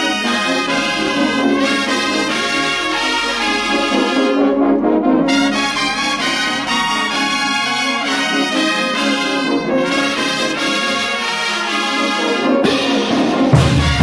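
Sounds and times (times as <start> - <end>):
brass band playing dance music: 0.0 - 14.0.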